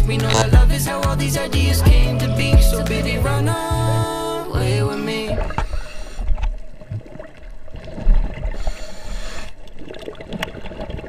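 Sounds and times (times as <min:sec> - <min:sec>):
underwater gurgling and bubbling: 0:02.4 - 0:11.0.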